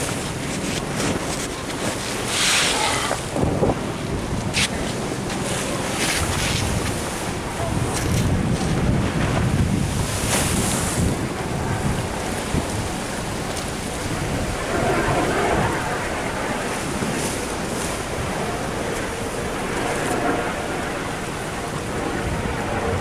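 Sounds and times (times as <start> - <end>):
surf washing against sea wall: 0.0 - 23.0
wind buffeting microphone: 0.0 - 23.0.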